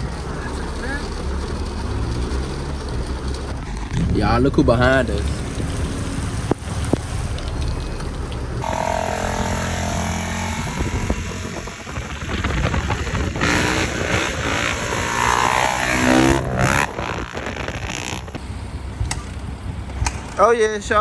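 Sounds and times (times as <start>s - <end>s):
motorbike engines revving: 0.0s - 21.0s.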